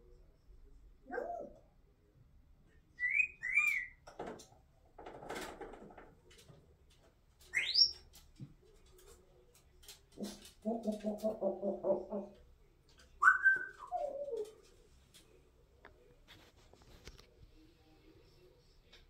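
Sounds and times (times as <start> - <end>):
parrot whistling: 3.0 - 4.0, 13.2 - 14.3.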